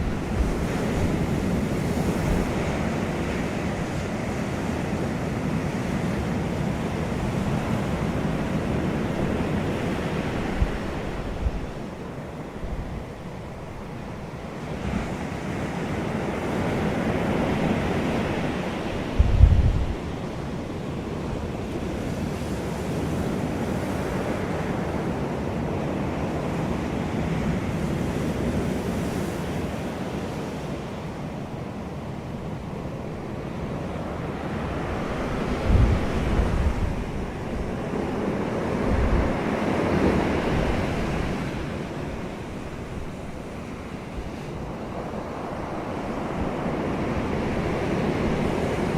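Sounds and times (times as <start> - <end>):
wind buffeting microphone: 0.0 - 13.8, 17.2 - 22.8, 33.1 - 48.9
wind blowing in gusts: 0.0 - 48.9.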